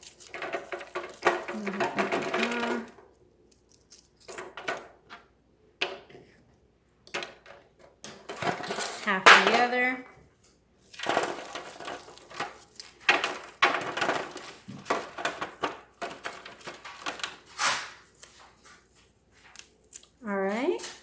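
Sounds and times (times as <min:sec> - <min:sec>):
onion crunching and rustling: 0:00.0 - 0:04.4, 0:10.8 - 0:21.0.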